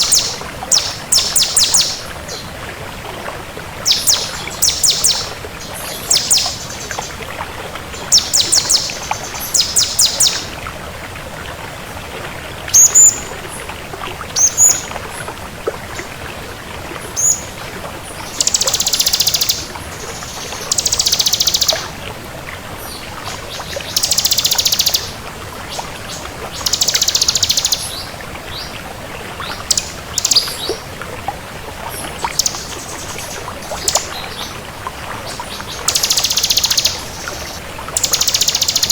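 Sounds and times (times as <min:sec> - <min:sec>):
bird singing rapid trills: 0:00.0 - 0:02.1, 0:03.9 - 0:06.9, 0:08.0 - 0:10.5, 0:18.4 - 0:21.9, 0:23.9 - 0:25.2, 0:26.6 - 0:28.0, 0:29.7 - 0:30.6, 0:35.8 - 0:38.9.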